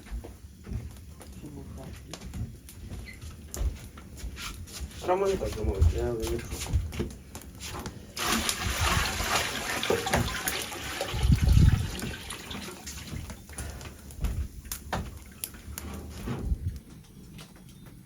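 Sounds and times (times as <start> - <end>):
liquid pouring: 8.2 - 13.4.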